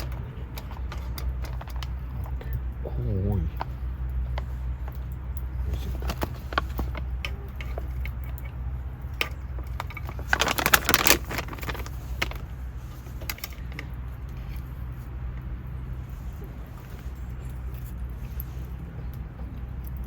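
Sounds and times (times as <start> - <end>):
steady low hum: 0.0 - 20.0
rustling crackle: 3.6 - 18.8.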